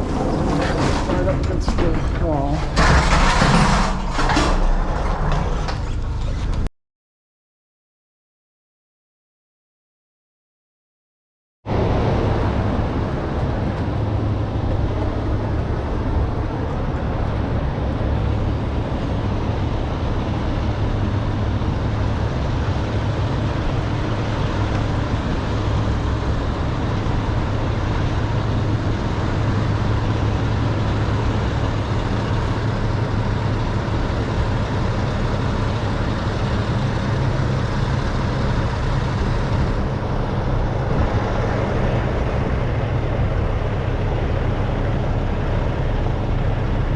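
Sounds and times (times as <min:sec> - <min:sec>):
road noise: 0:00.0 - 0:06.7, 0:11.7 - 0:46.9
truck engine drone: 0:00.0 - 0:06.7, 0:11.7 - 0:46.9.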